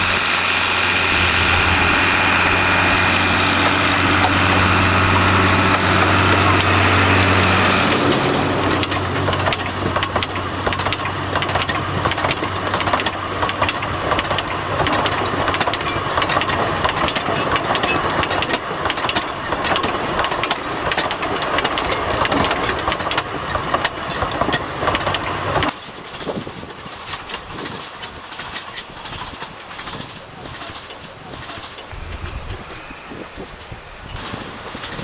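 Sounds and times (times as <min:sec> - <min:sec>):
low engine hum: 0:00.0 - 0:16.9, 0:31.3 - 0:35.0
train wheels clattering over joints: 0:00.0 - 0:35.0.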